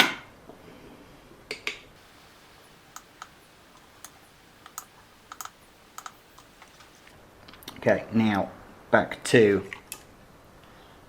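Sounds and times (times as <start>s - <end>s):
small items clicking on workbench: 2.0s - 7.1s.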